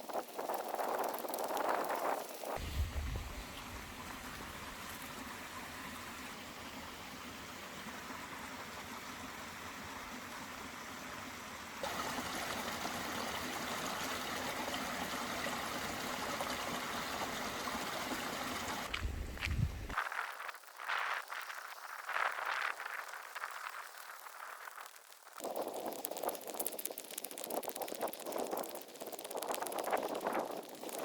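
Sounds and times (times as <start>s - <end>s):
running water: 11.8s - 20.0s.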